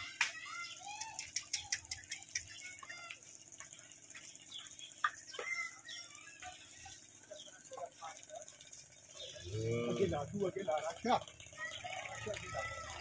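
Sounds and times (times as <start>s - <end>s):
small birds chirping: 0.0s - 13.0s
sharp clicks: 0.2s - 3.2s.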